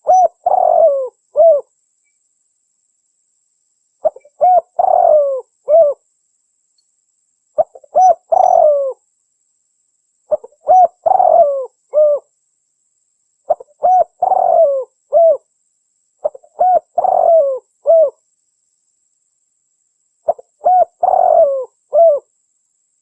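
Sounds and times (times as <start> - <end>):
dove cooing: 0.0 - 1.7, 4.0 - 6.0, 7.6 - 9.0, 10.3 - 12.3, 13.5 - 15.4, 16.2 - 18.2, 20.3 - 22.3.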